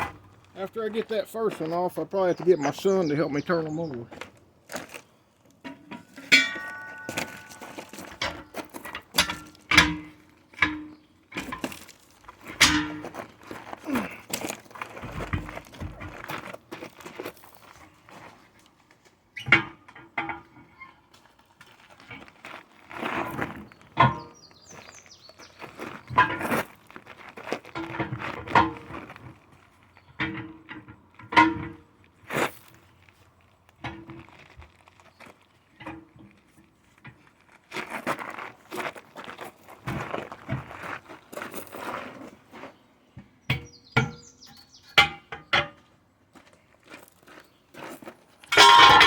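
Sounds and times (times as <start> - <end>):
knocks and scrapes on tire: 5.6 - 45.9, 47.1 - 49.0
metal tools knocking on steel wheel: 5.7 - 11.8, 48.5 - 49.0.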